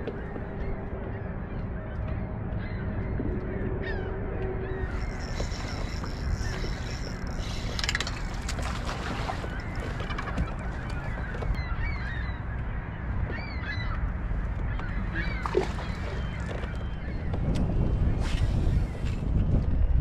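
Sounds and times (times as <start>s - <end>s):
birds calling: 2.6s - 17.5s.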